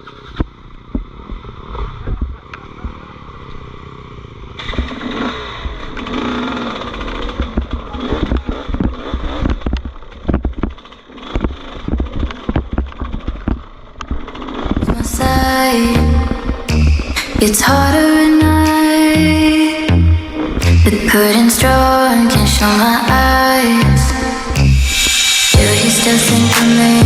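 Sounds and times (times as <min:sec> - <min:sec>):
dirt bike engine running: 0:00.0 - 0:18.0
bike knocks and rattles: 0:04.6 - 0:14.9.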